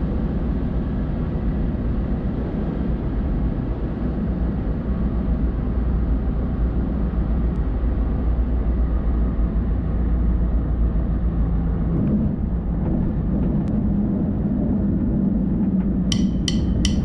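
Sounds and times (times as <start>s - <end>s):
light aircraft engine running: 0.0s - 16.2s.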